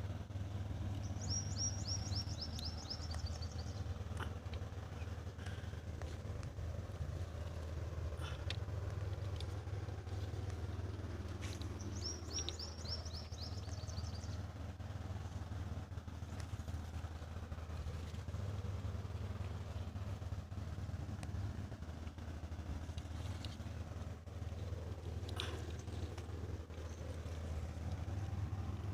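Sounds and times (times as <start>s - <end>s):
small tractor engine droning: 0.0s - 28.9s
bird chirping: 1.0s - 4.0s, 11.4s - 14.5s.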